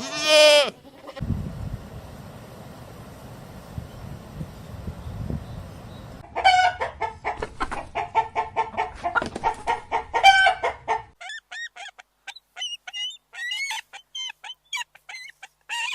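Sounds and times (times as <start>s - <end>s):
chickens clucking: 4.9s - 15.9s.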